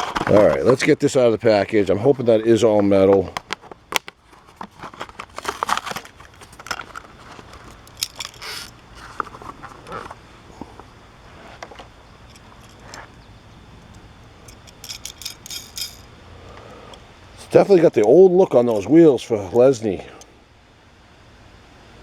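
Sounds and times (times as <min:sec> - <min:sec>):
plastic packaging crinkling and tearing: 0:03.3 - 0:10.2.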